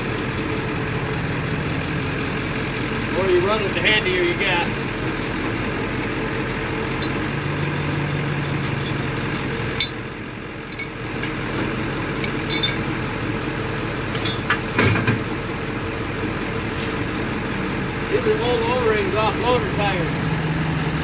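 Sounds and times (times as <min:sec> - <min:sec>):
truck engine running: 0:00.0 - 0:21.0
sharp metallic clinks: 0:12.2 - 0:12.8.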